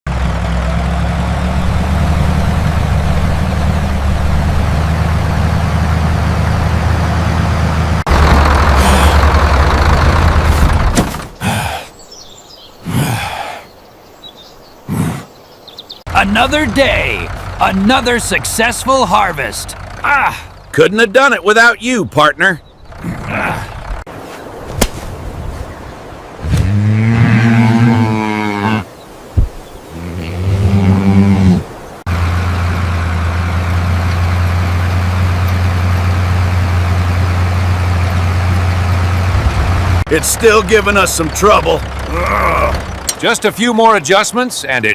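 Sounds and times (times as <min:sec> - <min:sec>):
tractor engine droning: 0:00.1 - 0:11.8, 0:16.1 - 0:24.9, 0:30.8 - 0:44.2.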